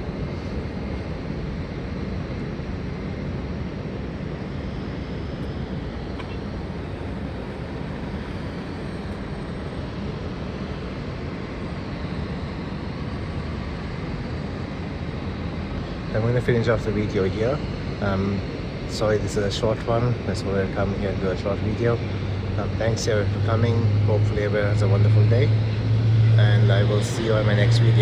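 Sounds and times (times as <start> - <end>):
distant jet aircraft: 0.0 - 28.0
faint whining tones: 5.3 - 10.7
traffic: 5.4 - 10.1, 21.8 - 28.0.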